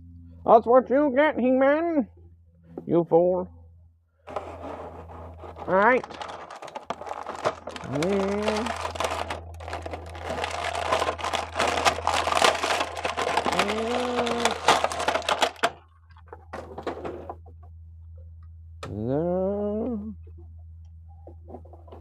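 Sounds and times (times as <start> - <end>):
steady low hum: 0.0 - 22.0
plastic packaging crinkling: 5.2 - 15.8
person humming: 7.8 - 8.9, 13.4 - 14.8, 18.8 - 20.2
rising vocal sound: 18.9 - 20.2.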